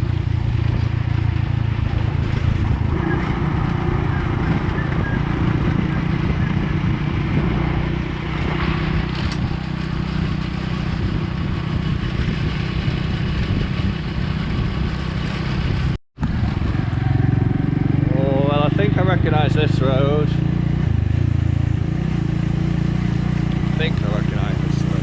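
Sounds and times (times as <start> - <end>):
wind noise on microphone: 0.0 - 18.1
motorbike engine running: 0.0 - 25.0.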